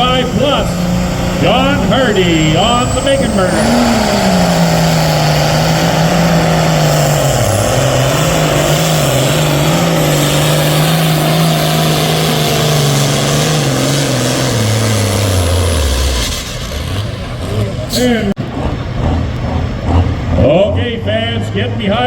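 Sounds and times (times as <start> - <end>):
tractor diesel engine at full throttle: 0.0 - 22.0.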